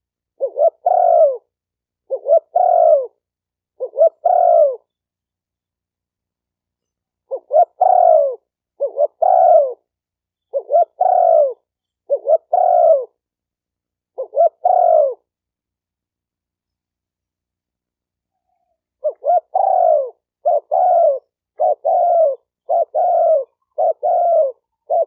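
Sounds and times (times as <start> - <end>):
dove cooing: 0.4 - 3.2, 3.8 - 4.9, 7.3 - 9.9, 10.5 - 13.2, 14.2 - 15.3, 18.4 - 25.0.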